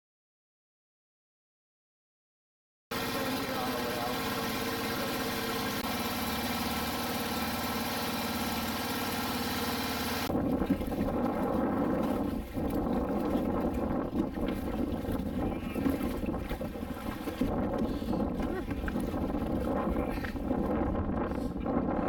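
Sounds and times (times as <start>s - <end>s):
motorboat engine running: 2.9s - 22.0s.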